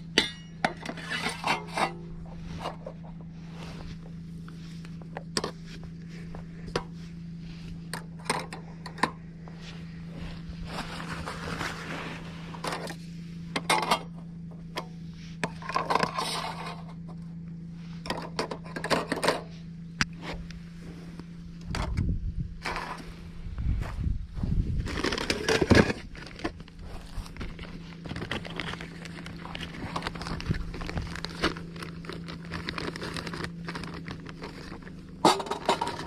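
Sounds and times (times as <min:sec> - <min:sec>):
steady low hum: 0:00.0 - 0:36.0
scraping and rustling: 0:00.3 - 0:08.8, 0:09.4 - 0:14.2, 0:24.4 - 0:36.0.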